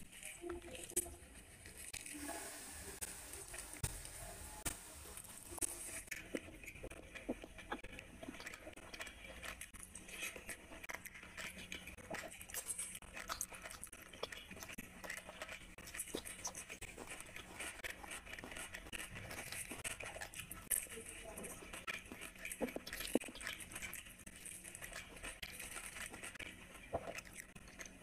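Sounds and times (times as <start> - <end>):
chewing with wet mouth clicks: 5.6 - 28.0.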